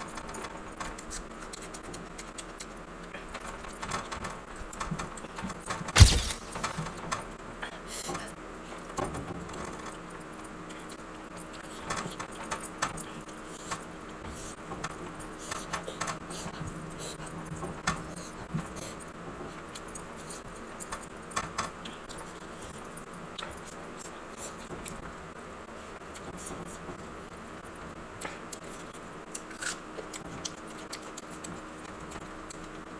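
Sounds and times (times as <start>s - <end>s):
chewing and mouth clicks: 0.9s - 3.2s, 28.2s - 32.8s.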